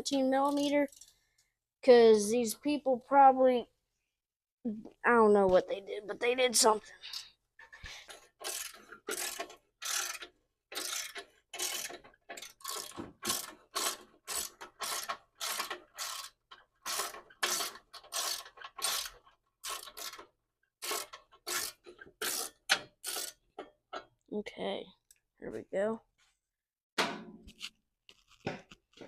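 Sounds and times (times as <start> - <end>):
ratchet wrench clicking: 8.4 - 20.2.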